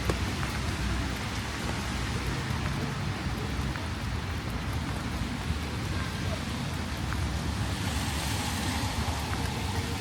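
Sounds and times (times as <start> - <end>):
rain hissing: 0.0 - 10.0.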